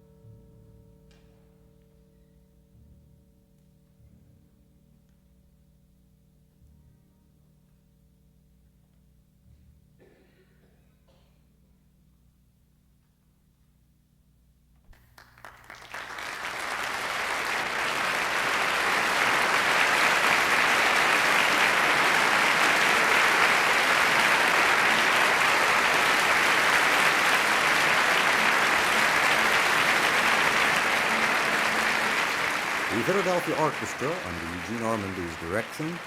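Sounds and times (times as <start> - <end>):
audience applauding: 15.0 - 36.0.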